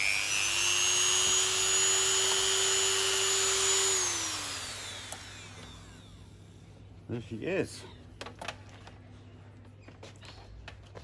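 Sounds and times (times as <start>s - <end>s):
power tool spinning down: 0.0s - 6.1s
power tool whining: 0.0s - 6.1s.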